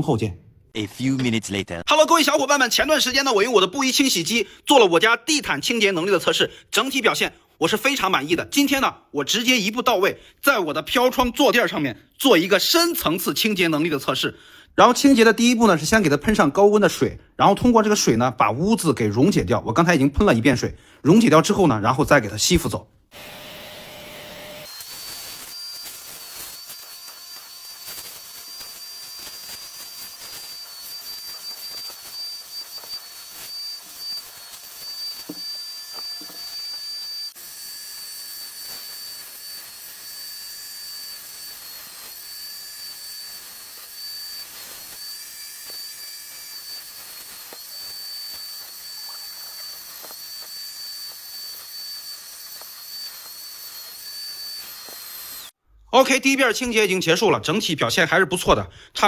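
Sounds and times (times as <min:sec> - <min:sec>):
suction machine whine: 0:23.1 - 0:55.6.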